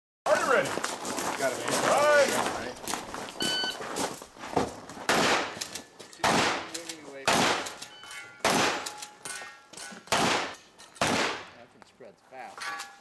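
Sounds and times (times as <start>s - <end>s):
short electronic beep: 3.4s - 3.8s
shotgun shots echoing: 5.1s - 5.6s, 6.2s - 11.6s.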